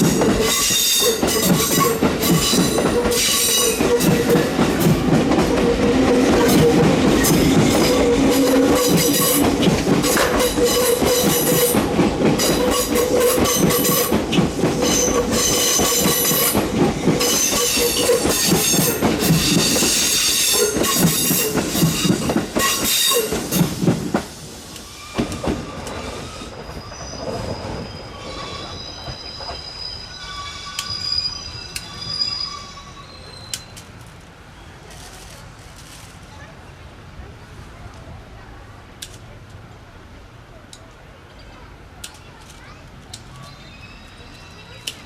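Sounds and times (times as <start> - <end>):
wheels clacking over rail joints: 0.0 - 29.9
wheels squealing on rails: 0.0 - 36.1, 42.6 - 45.0.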